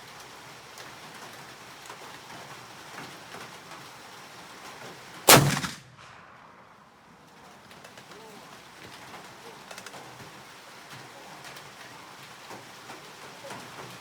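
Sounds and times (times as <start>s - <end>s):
light rain falling: 0.0s - 14.0s
gunshot: 5.3s - 6.6s.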